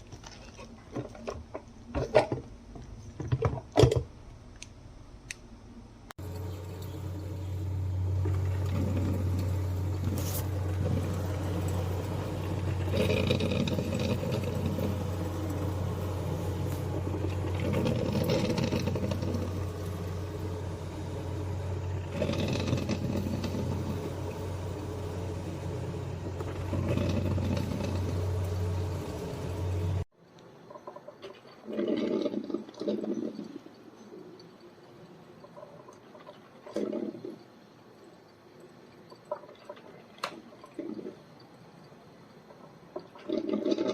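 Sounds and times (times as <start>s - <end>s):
low electrical hum: 0.0s - 31.6s
coffee maker gurgling and sputtering: 6.2s - 30.1s, 30.7s - 34.6s, 35.4s - 37.5s, 39.1s - 41.5s, 42.5s - 43.9s.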